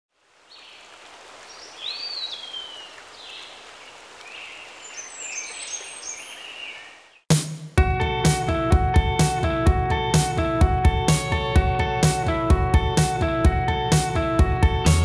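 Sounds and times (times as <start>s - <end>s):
birds singing: 0.5s - 7.3s.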